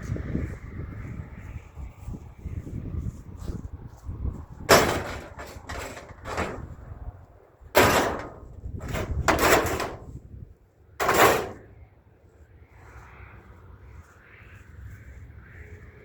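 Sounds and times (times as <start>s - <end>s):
scrap metal crashing: 4.7s - 6.8s, 7.8s - 10.2s, 11.0s - 11.7s.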